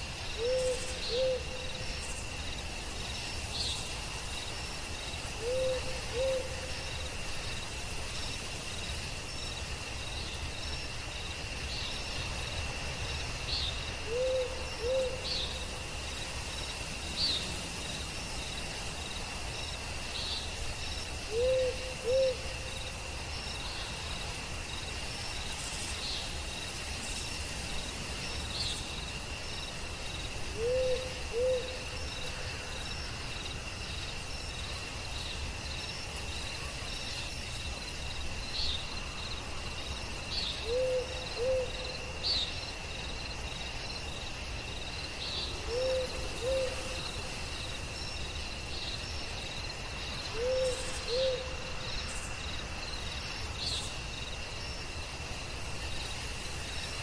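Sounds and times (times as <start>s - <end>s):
crickets trilling: 0.0s - 57.0s
owl hooting: 0.4s - 1.7s, 5.4s - 6.6s, 14.1s - 15.2s, 21.3s - 22.4s, 30.6s - 31.7s, 40.6s - 41.7s, 45.7s - 47.0s, 50.3s - 51.6s.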